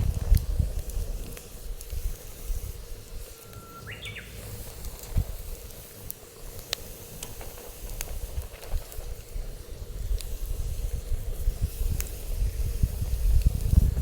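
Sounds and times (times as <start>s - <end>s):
wind on microphone: 0.0s - 3.3s, 4.4s - 5.8s, 7.3s - 14.0s
wood fire crackling and popping: 0.0s - 14.0s
high whistling tone: 3.2s - 4.8s.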